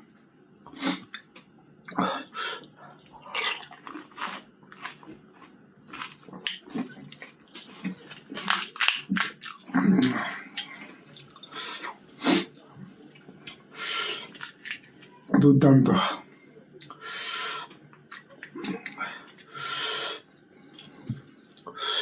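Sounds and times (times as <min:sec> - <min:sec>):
slurping and chewing: 0:02.6 - 0:15.1
crisp shells crunching: 0:03.3 - 0:09.6.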